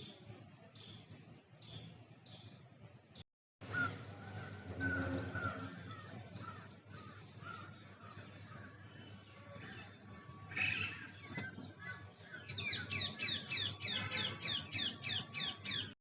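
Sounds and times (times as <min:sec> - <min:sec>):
birds chirping: 0:03.6 - 0:16.0.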